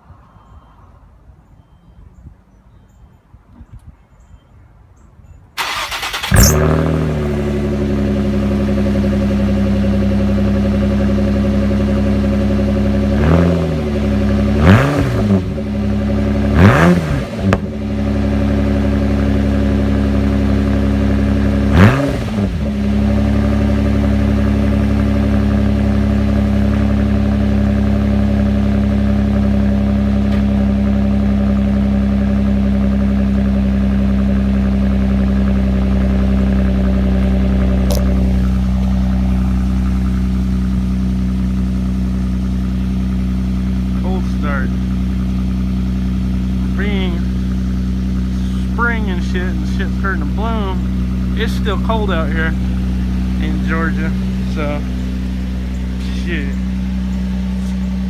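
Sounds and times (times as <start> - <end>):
car engine cranking: 5.6 - 58.0
car engine idling: 5.6 - 58.0
car engine revving: 5.6 - 58.0.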